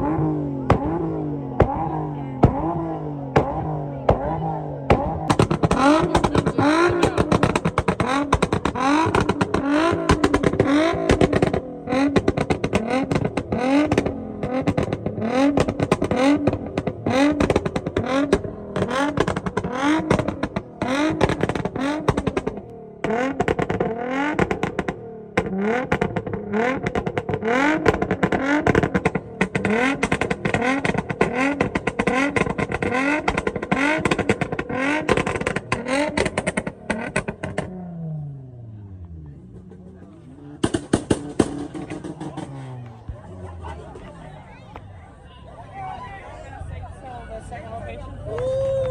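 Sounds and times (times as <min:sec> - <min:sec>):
car engine revving: 0:00.0 - 0:45.6.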